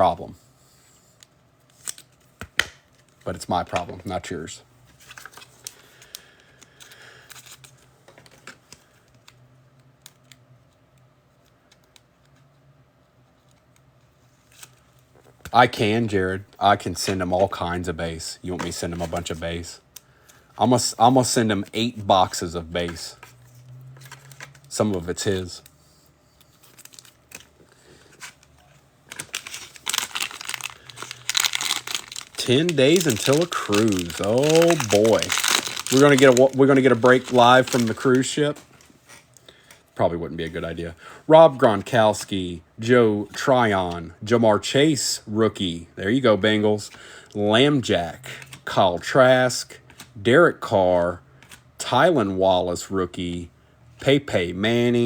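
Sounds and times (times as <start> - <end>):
plastic wrapping crinkling and tearing: 26.5 - 39.4.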